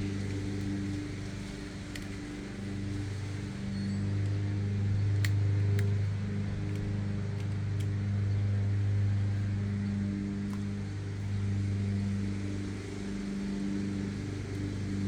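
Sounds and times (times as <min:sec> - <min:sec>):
engine humming: 0:00.0 - 0:15.0
small parts clicking: 0:05.2 - 0:08.0.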